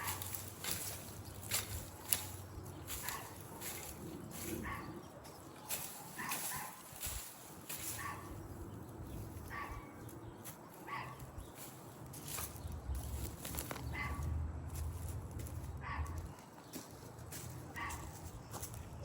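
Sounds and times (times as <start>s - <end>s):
dog barking: 3.0s - 3.8s, 4.5s - 5.0s, 6.0s - 6.9s, 7.9s - 8.4s, 9.5s - 10.0s, 10.8s - 11.2s, 13.9s - 14.3s, 15.8s - 16.2s, 17.8s - 18.2s.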